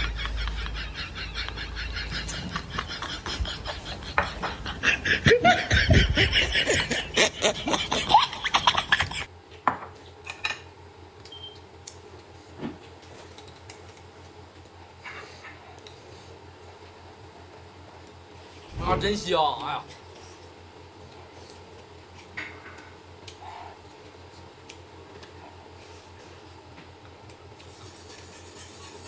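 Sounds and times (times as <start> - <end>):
people laughing: 0.0 - 9.3.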